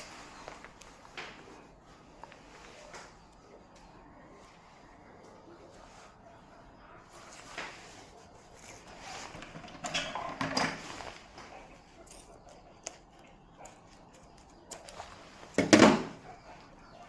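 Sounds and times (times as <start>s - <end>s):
objects clattering being set down: 9.3s - 11.1s, 15.6s - 16.2s.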